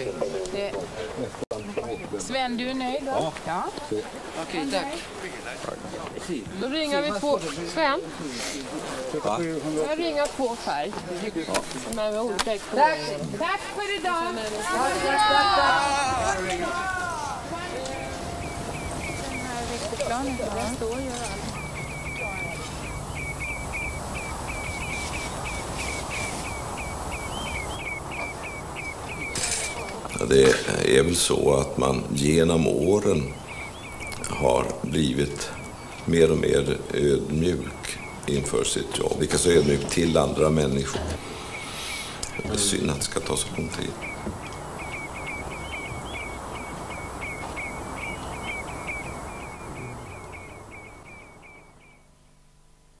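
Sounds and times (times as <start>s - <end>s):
bird chirping: 0.0s - 53.0s
low outdoor rumble: 13.4s - 52.0s.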